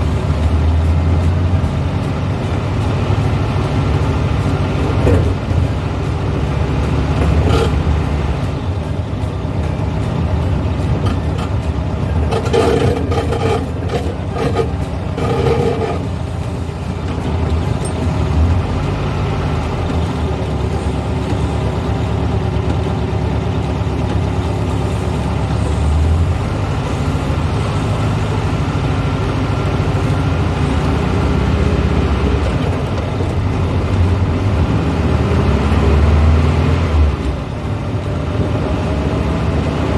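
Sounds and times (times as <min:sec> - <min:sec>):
rattles and knocks: 0:00.0 - 0:18.8
car engine running: 0:00.0 - 0:39.9
road noise: 0:00.0 - 0:39.9.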